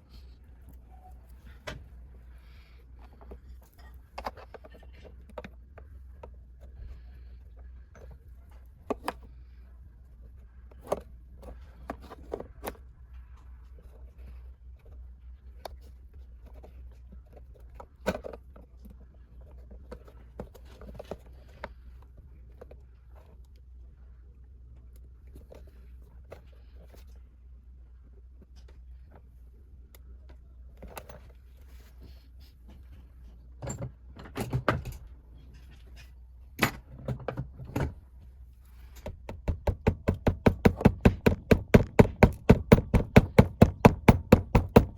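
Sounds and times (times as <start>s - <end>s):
low steady hum: 0.0s - 44.9s
sharp knocks: 39.3s - 44.9s.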